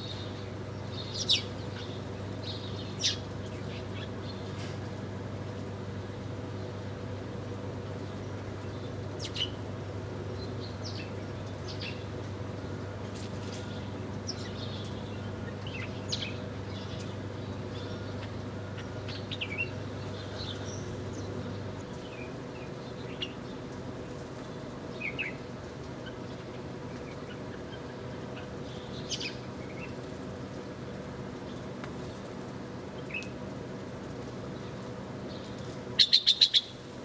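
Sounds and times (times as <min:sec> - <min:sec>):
small birds chirping: 0:00.0 - 0:04.5, 0:10.4 - 0:12.1, 0:13.4 - 0:33.4, 0:34.0 - 0:37.0.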